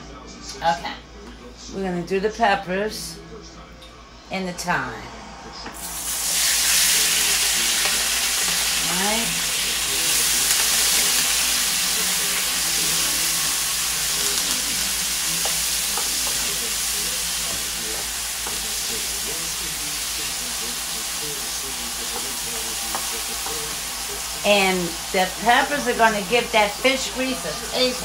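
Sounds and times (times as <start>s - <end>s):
peppers sizzling in hot oil: 5.8s - 28.0s.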